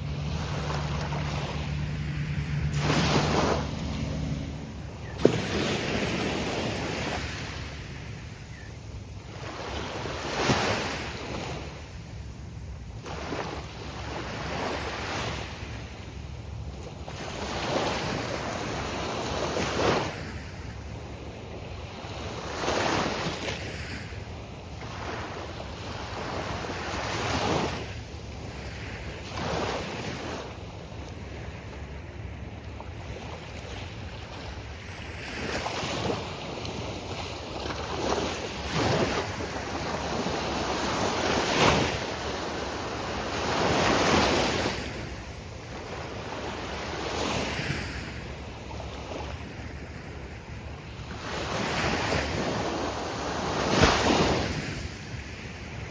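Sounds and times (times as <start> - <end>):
surf breaking on beach: 0.0 - 8.1, 51.4 - 55.9
wind rumble on microphone: 0.0 - 55.9.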